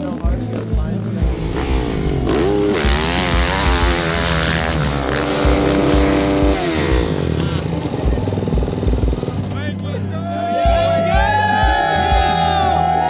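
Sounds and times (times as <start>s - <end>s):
dirt bike engine revving: 1.1s - 9.7s.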